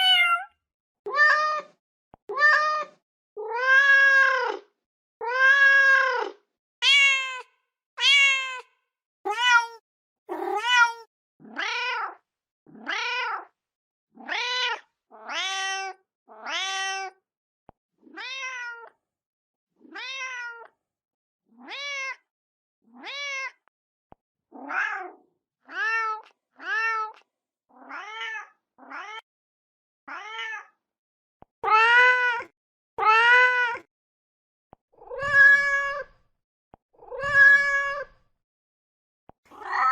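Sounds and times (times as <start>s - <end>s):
cat meowing: 0.0s - 0.5s, 2.3s - 4.6s, 5.2s - 8.7s, 9.3s - 12.2s, 14.3s - 17.2s, 18.1s - 18.9s, 19.9s - 20.7s, 21.6s - 22.2s, 23.0s - 23.6s, 24.6s - 27.2s, 27.8s - 29.2s, 30.1s - 30.7s, 31.6s - 33.9s, 35.0s - 36.1s, 37.0s - 38.1s, 39.5s - 39.9s.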